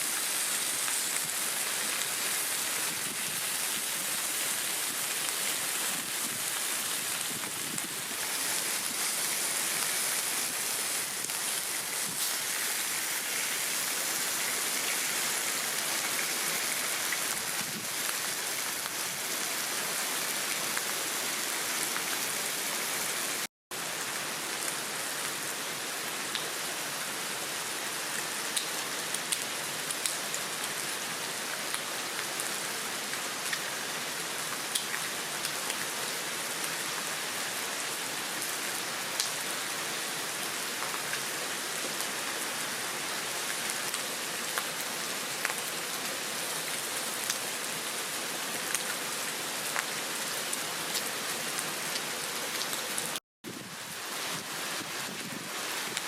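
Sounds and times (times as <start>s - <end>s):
heavy rain pouring: 0.0s - 56.0s
sharp rain ticks: 0.1s - 19.4s, 28.2s - 30.8s, 34.5s - 35.9s, 39.2s - 39.4s, 43.5s - 45.8s, 48.6s - 54.5s.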